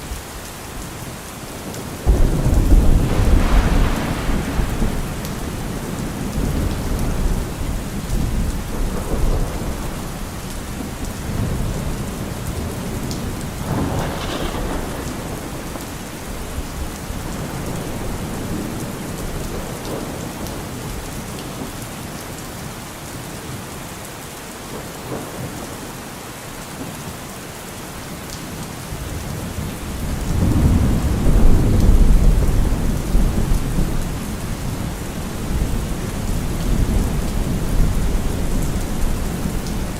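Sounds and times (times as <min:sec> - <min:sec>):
steady rain falling: 0:00.0 - 0:39.9
rolling thunder: 0:01.6 - 0:21.0, 0:29.6 - 0:39.9.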